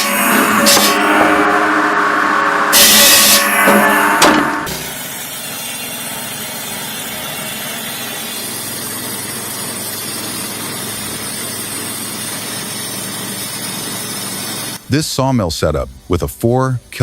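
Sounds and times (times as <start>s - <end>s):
sawmill machine running: 0.0s - 14.8s.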